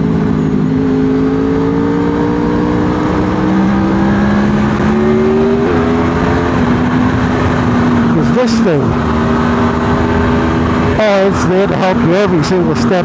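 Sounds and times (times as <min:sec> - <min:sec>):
motorcycle engine pulling: 0:02.5 - 0:13.0
steady rush of noise: 0:03.0 - 0:13.0.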